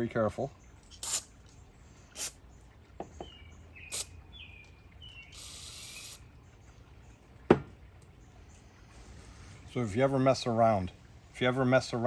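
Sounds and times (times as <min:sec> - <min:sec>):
aerosol spray hiss: 0:01.0 - 0:01.3.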